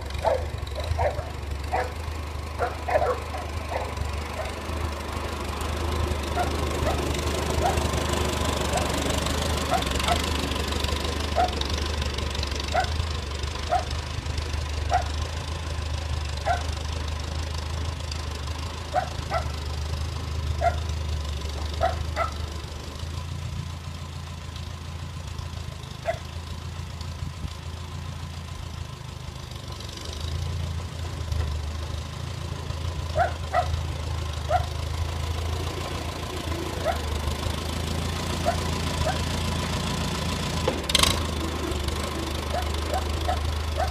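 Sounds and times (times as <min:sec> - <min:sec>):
tractor engine idling: 0:00.0 - 0:43.9
dog barking: 0:00.2 - 0:02.0, 0:02.6 - 0:04.6, 0:06.4 - 0:07.0, 0:07.6 - 0:07.8, 0:09.7 - 0:10.2, 0:11.4 - 0:11.6, 0:12.7 - 0:13.0, 0:13.7 - 0:13.9, 0:14.9 - 0:15.1, 0:16.4 - 0:16.7, 0:18.9 - 0:19.6, 0:20.6 - 0:20.8, 0:21.8 - 0:22.4, 0:26.0 - 0:26.2, 0:33.2 - 0:33.8, 0:34.5 - 0:34.7, 0:36.8 - 0:37.0, 0:38.4 - 0:39.2, 0:42.5 - 0:43.9.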